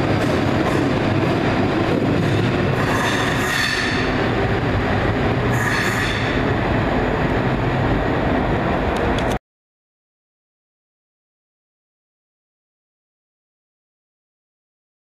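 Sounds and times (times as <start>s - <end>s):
train rumbling: 0.0s - 9.4s
high wheel squeal: 2.8s - 4.2s, 5.5s - 6.4s.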